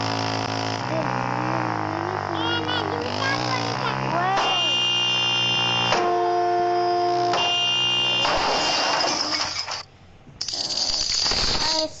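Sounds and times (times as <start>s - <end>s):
noisy rush: 0.0s - 6.0s
multi-tone horn chord: 0.8s - 8.3s.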